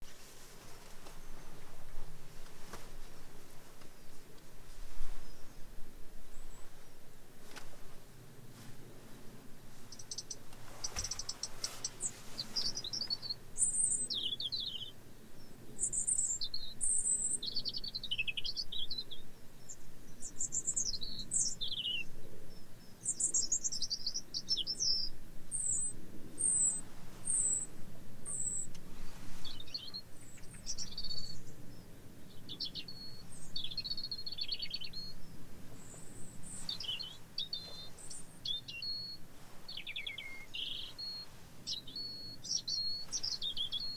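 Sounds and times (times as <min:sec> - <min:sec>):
robin singing: 0:09.9 - 0:28.8, 0:29.4 - 0:43.9.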